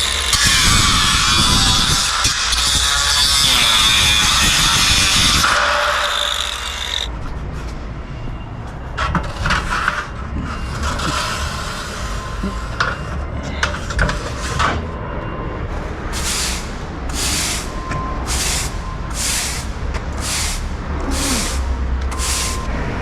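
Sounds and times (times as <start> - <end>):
hissing scraping strokes: 16.2 - 17.7, 18.3 - 22.7.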